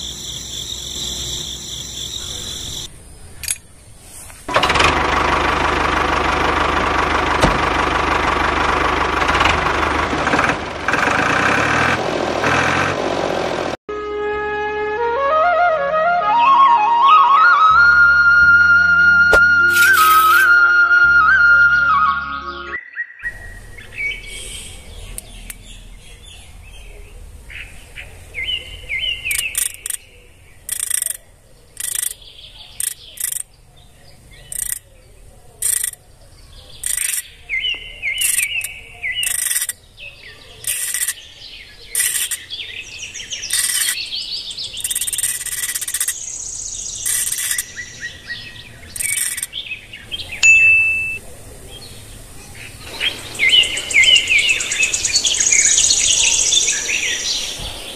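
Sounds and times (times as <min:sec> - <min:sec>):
birds chirping: 0:00.0 - 0:04.5, 0:21.8 - 0:57.9.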